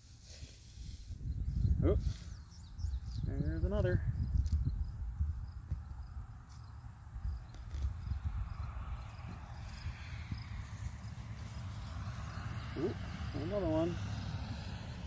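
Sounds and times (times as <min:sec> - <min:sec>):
hands digging through soil: 0:00.0 - 0:01.2
crickets chirping: 0:00.0 - 0:15.0.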